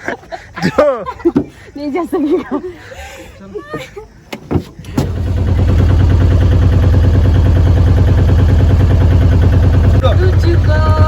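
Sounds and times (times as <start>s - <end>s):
engine running with low pulsing: 5.0s - 11.0s.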